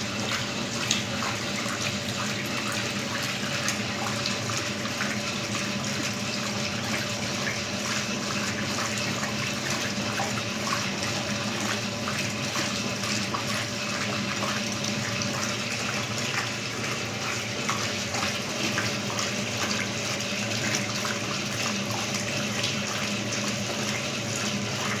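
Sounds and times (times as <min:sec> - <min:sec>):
washing machine filling with water: 0:00.0 - 0:25.0.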